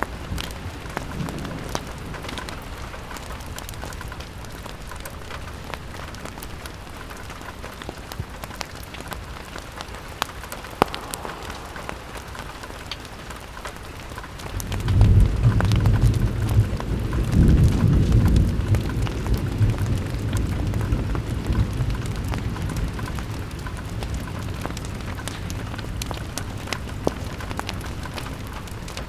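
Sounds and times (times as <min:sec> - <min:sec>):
rain on window glass: 0:00.0 - 0:29.0
low rumble: 0:10.3 - 0:14.1.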